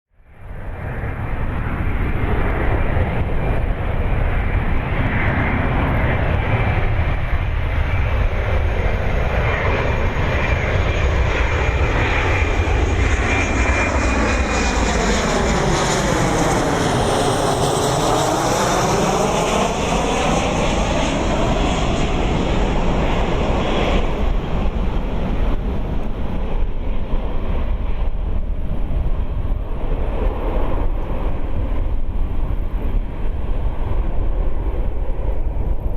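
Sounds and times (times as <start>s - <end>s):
jet airliner flying past: 0.2s - 35.9s.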